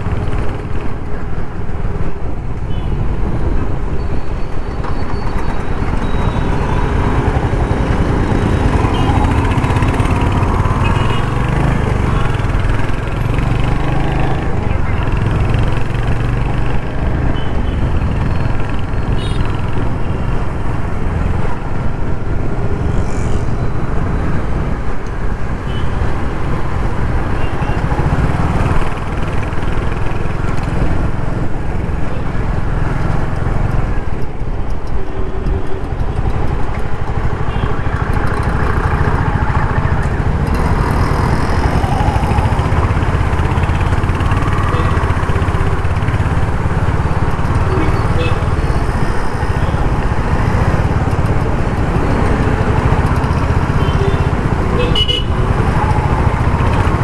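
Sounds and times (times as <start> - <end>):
road and traffic noise: 0.0 - 57.0
motorcycle engine running: 4.8 - 21.9, 36.0 - 57.0.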